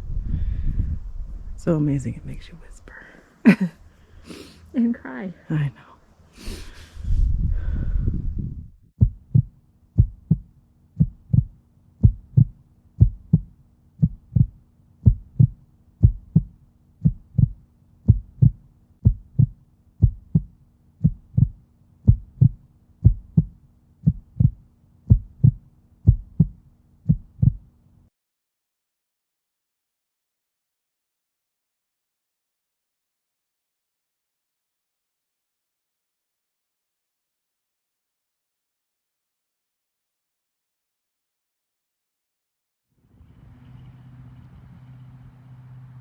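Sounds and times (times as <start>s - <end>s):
heartbeat double thumps: 7.3s - 27.7s
faint steady drone: 43.0s - 46.0s.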